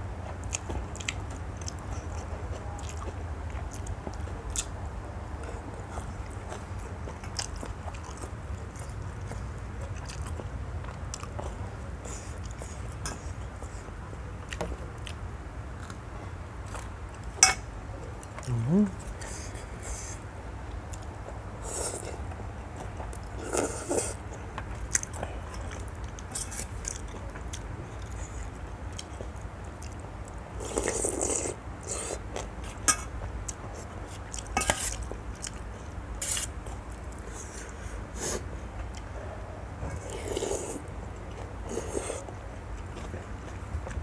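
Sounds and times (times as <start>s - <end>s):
steady low hum: 0.0s - 44.0s
person chewing and slurping: 30.6s - 32.8s, 40.0s - 42.3s.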